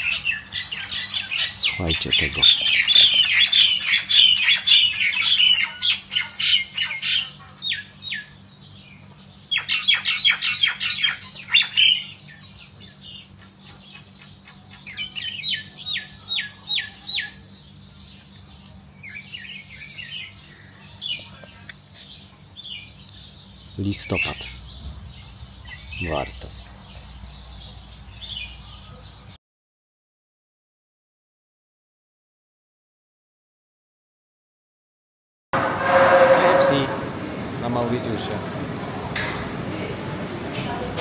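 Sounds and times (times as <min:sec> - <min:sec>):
flock of birds squawking: 0:00.0 - 0:08.4, 0:23.6 - 0:29.2, 0:35.6 - 0:38.6.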